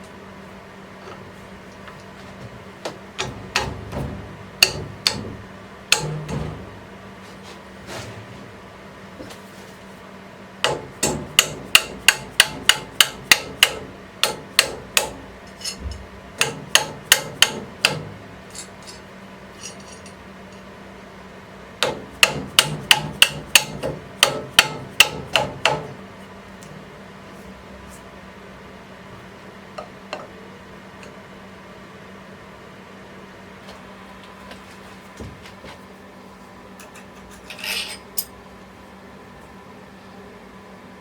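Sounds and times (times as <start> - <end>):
hammer striking: 2.9 - 7.0, 10.6 - 15.8, 16.4 - 18.2, 21.8 - 25.9.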